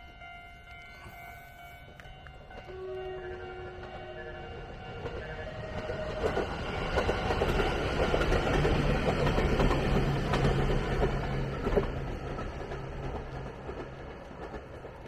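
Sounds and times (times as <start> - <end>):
electric train hum: 0.0 - 15.0
wheel-and-rail rumble: 5.0 - 15.0.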